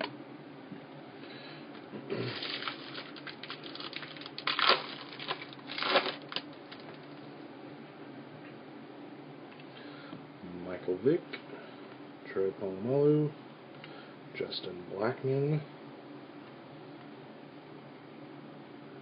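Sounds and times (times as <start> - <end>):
wrapper tearing and crinkling: 2.2 - 7.1.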